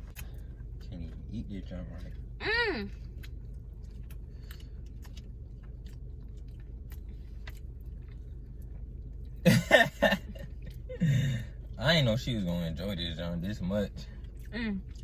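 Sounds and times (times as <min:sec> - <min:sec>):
chewing and mouth clicks: 0:00.0 - 0:02.3, 0:02.9 - 0:09.4, 0:14.1 - 0:15.0
low steady hum: 0:00.0 - 0:15.0.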